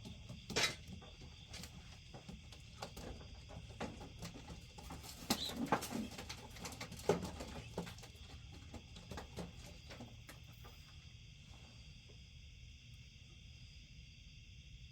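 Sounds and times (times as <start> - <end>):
wings flapping and rustling: 4.2 - 8.2
pigeons cooing: 5.0 - 6.2.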